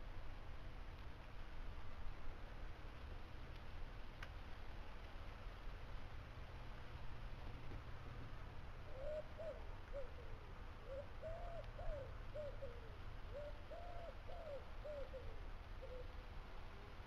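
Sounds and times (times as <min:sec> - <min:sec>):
faint low rumble: 0:00.0 - 0:17.0
low arched bird calls: 0:08.8 - 0:16.2.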